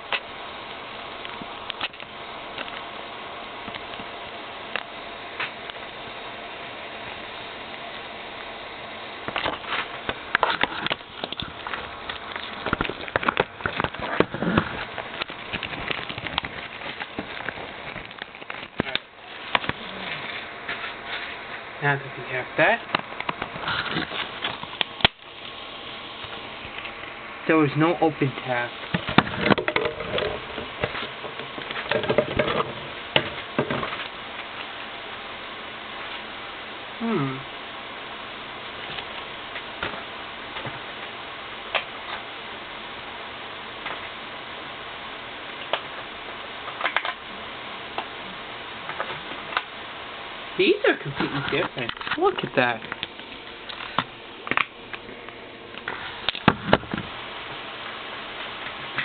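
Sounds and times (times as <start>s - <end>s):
low steady hiss: 0.0s - 59.0s
plastic packaging crackling: 9.2s - 21.6s.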